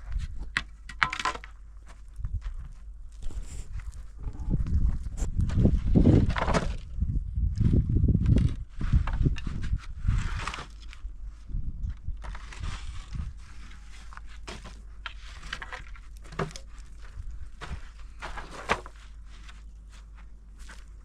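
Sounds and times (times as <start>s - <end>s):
low rumble: 2.2s - 10.4s
rustling: 12.2s - 21.0s.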